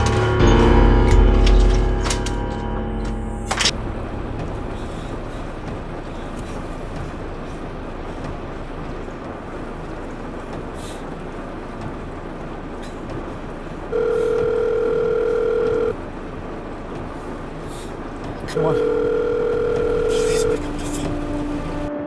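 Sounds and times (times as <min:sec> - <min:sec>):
telephone ringback tone: 0:13.9 - 0:16.0, 0:18.6 - 0:20.6.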